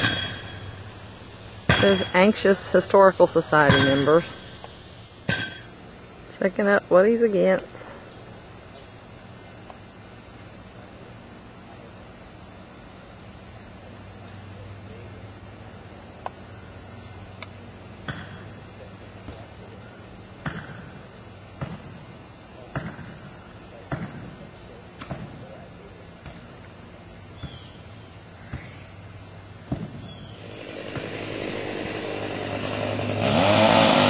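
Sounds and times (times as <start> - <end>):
sharp ringing knocks: 0.0 - 5.8, 18.0 - 18.6, 20.4 - 21.0, 22.7 - 24.4.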